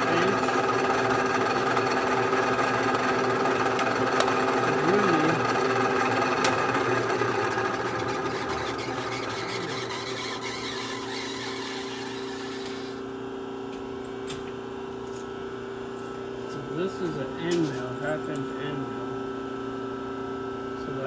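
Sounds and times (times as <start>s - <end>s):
milling machine motor hum: 0.0s - 13.0s.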